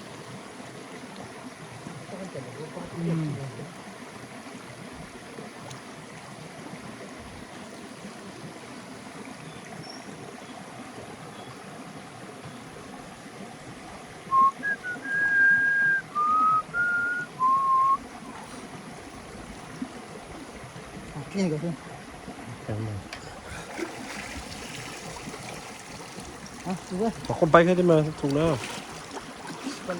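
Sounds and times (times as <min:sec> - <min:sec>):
stream water rushing: 0:00.0 - 0:29.9
person whistling a tune: 0:14.3 - 0:18.0.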